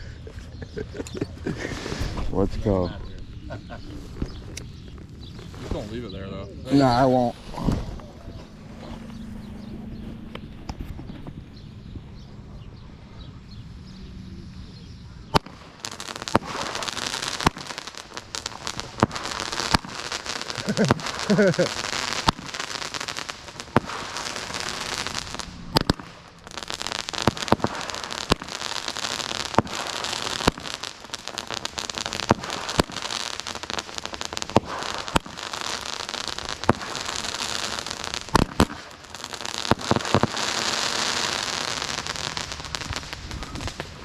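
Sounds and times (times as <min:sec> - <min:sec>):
firework fizzing hiss: 0:00.6 - 0:11.1, 0:15.3 - 0:44.0
firework sharp pops: 0:01.0 - 0:06.1, 0:06.8 - 0:11.6, 0:15.3 - 0:44.0.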